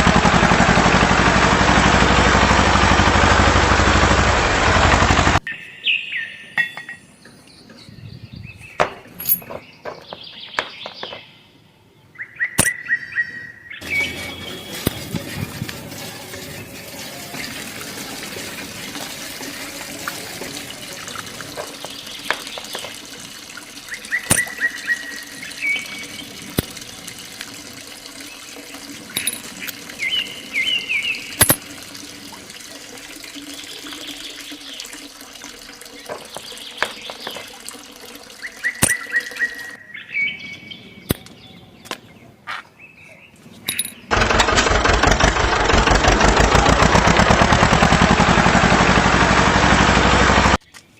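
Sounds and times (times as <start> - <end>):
bird chirps: 5.4 - 15.0, 23.9 - 26.2
water running: 13.8 - 39.8.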